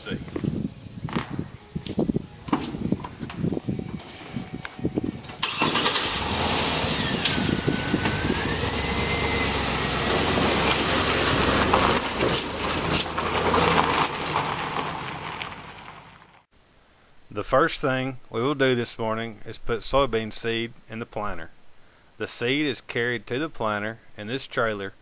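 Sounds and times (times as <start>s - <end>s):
engine whine: 0.0s - 16.4s
farm machine engine running: 2.4s - 15.3s.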